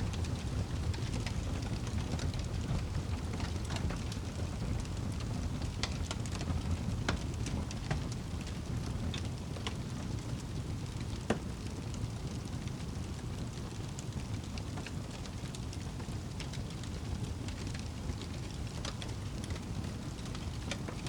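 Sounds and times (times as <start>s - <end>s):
fire crackling: 0.0s - 21.0s
low rumble of flames: 0.0s - 21.0s.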